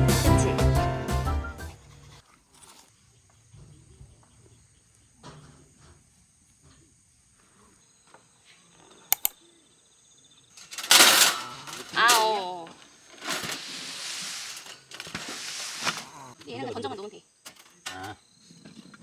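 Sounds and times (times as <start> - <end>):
background music: 0.0 - 1.8
insects chirring: 4.1 - 19.0
sharp clicks: 9.1 - 9.4
light rustling: 10.6 - 16.2.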